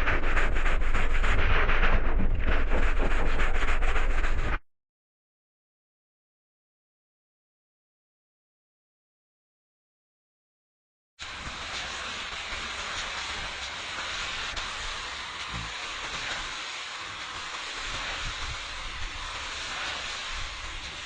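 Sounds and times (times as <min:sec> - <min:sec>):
low rumble: 0:00.0 - 0:04.6
steady hissing: 0:11.2 - 0:21.0.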